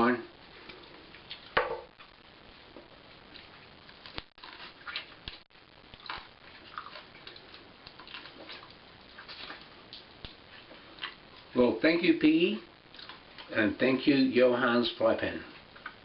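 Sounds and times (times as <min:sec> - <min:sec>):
person chewing: 0:00.6 - 0:01.6, 0:03.3 - 0:11.5, 0:12.8 - 0:13.6
sucking meat off bones: 0:03.3 - 0:11.5.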